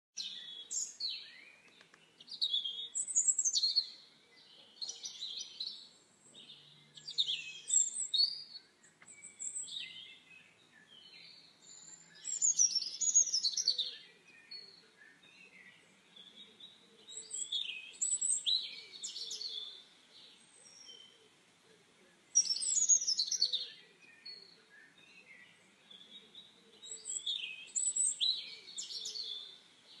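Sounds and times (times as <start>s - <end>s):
small birds chirping: 0.2s - 30.0s.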